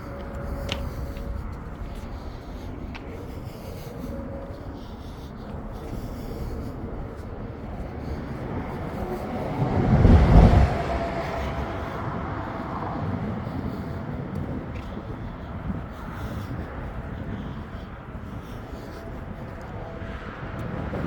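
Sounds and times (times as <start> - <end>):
vehicle passing by: 0.0 - 15.2.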